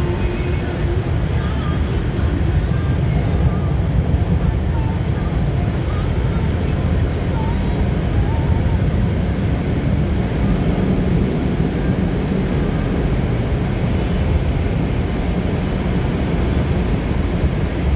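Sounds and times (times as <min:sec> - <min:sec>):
car wash machinery rumbling: 0:00.0 - 0:17.9.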